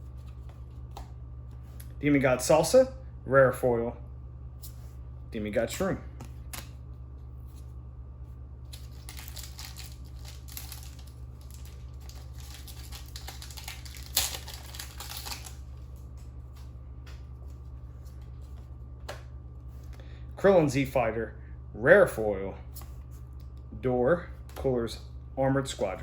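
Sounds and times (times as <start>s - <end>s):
cards being handled: 0.0s - 2.0s, 6.2s - 7.7s, 8.7s - 20.0s
low electrical hum: 0.0s - 26.0s
foil pack crinkling: 8.7s - 16.2s.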